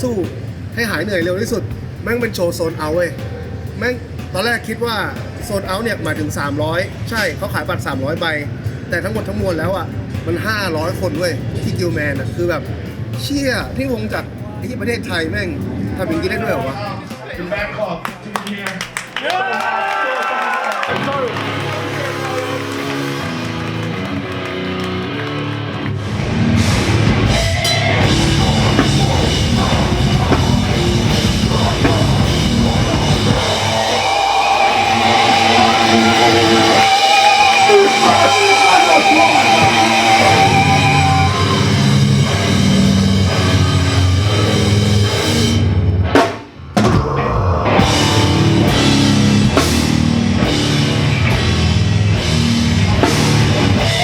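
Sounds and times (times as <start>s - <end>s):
heavy rock band music: 21.0s - 54.0s.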